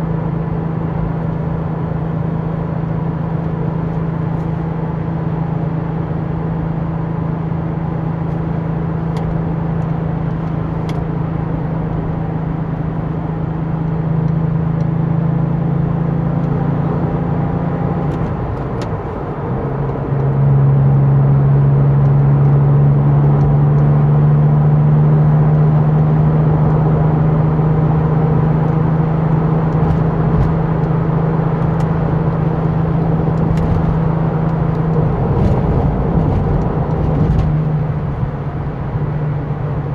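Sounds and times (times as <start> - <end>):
car engine while driving: 0.0 - 39.9.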